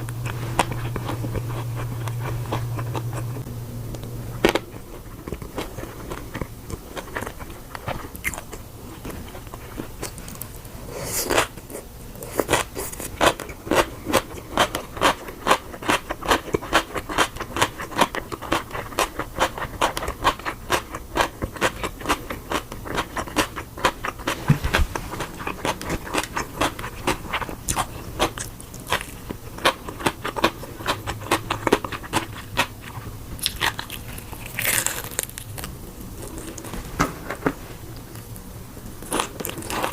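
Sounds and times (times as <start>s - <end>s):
firm food being crunched: 33.4s - 36.8s.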